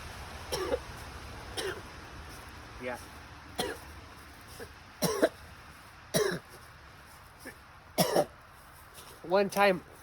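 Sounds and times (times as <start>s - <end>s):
man coughing: 0.5s - 0.8s, 3.6s - 3.8s, 5.0s - 5.4s, 6.1s - 6.5s, 8.0s - 8.3s.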